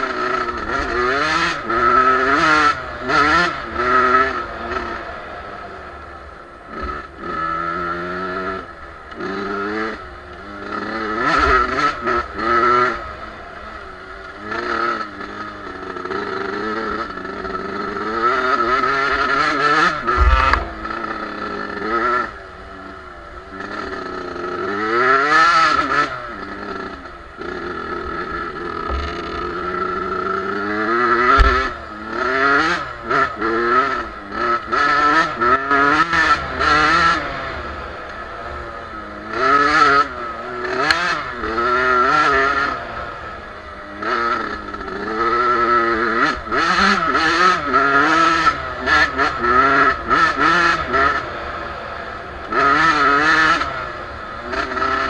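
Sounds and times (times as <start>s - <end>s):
dirt bike engine revving: 0.0s - 55.0s
short clattering: 20.0s - 21.3s, 28.8s - 29.7s
low thumps: 20.0s - 21.4s, 28.0s - 30.1s, 31.3s - 31.8s.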